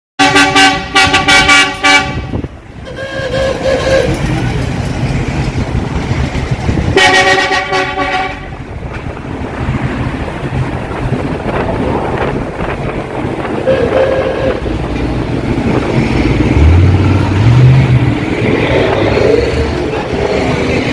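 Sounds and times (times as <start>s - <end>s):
multi-tone horn tooting: 0.2s - 4.4s, 6.9s - 8.6s, 13.5s - 14.8s
low engine rumble: 0.4s - 20.9s.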